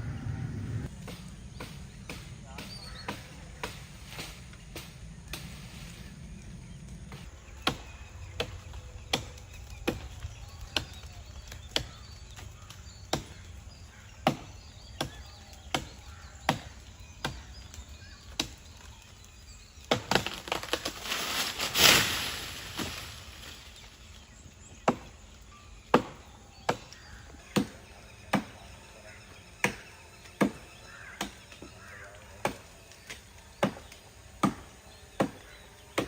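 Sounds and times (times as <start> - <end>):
rush of noise: 0.0 - 0.9.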